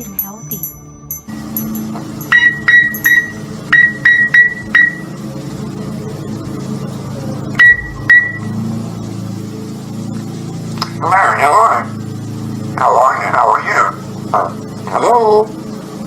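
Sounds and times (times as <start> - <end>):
low hum: 0.0 - 16.0
short high beeps: 2.2 - 5.1, 7.6 - 8.6.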